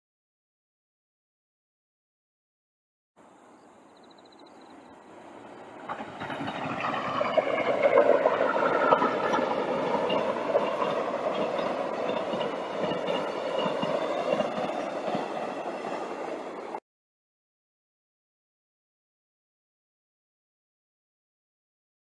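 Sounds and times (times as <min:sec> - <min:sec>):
locomotive whine: 0:05.1 - 0:16.8
train wheels rumbling: 0:05.2 - 0:16.8.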